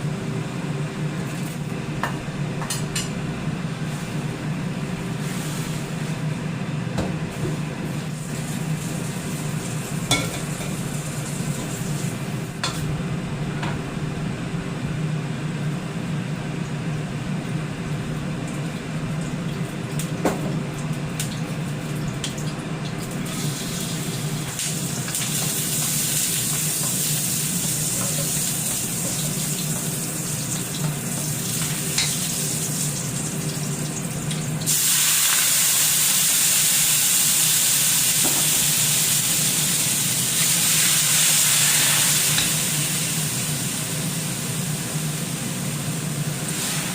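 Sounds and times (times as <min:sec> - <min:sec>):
steady low hum: 0:00.0 - 0:34.7
sizzling hiss: 0:34.7 - 0:44.9, 0:46.4 - 0:46.9.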